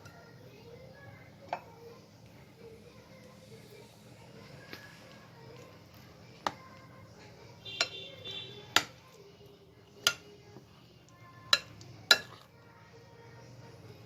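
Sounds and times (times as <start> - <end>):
utensil clinking against bowl: 11.5 - 12.5.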